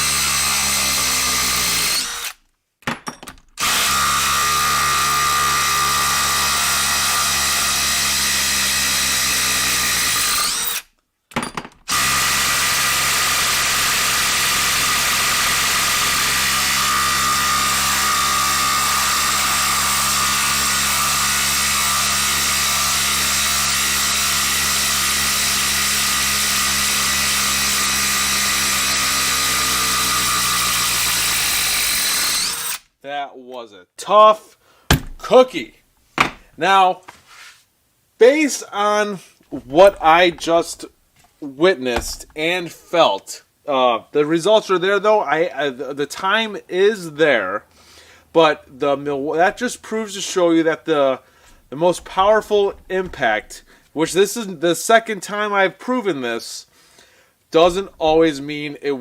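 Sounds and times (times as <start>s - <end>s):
impact driver hammering: 34.9s - 35.3s, 42.0s - 42.4s, 51.5s - 53.7s.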